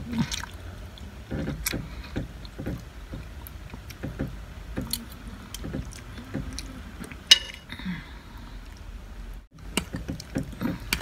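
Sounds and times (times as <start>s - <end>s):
person chewing food: 0.0s - 4.2s.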